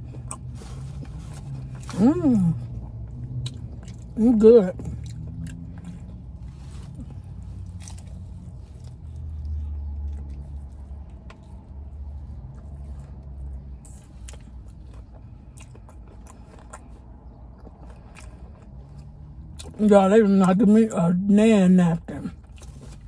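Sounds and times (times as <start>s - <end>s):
biting and chewing: 4.8s - 19.8s, 22.3s - 23.0s.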